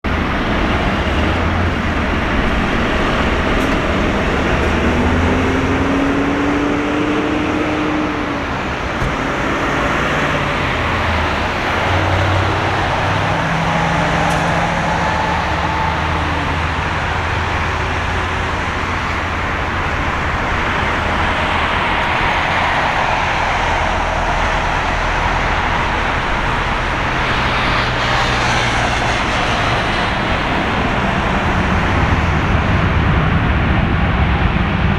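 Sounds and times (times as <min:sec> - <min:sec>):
passing vehicle engines: 0:00.0 - 0:34.9
road traffic rumble: 0:00.0 - 0:34.9.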